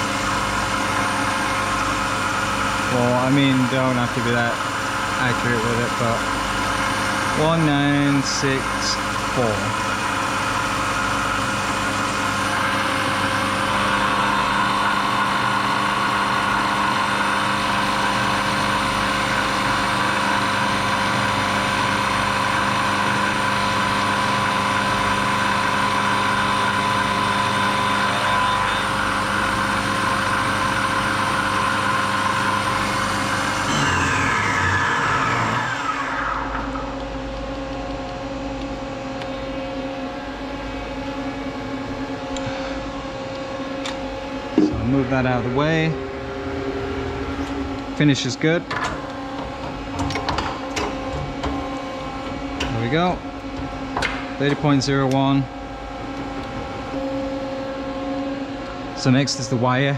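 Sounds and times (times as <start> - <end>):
milling machine spindle whining: 0.0 - 37.3
low machine hum: 0.0 - 59.9.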